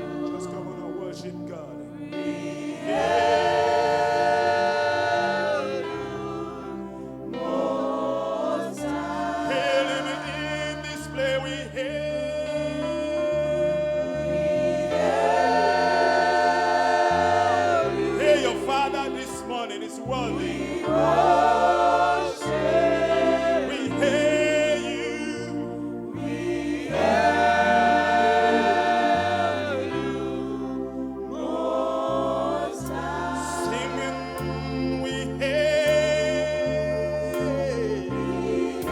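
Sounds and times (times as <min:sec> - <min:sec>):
church choir singing: 0:00.0 - 0:38.9
instrumental backing with bass line: 0:00.0 - 0:38.9.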